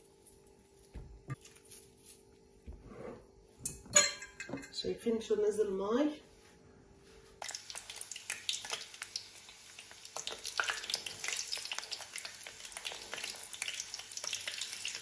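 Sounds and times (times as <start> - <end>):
eggplant sizzling in hot oil: 7.4 - 15.0.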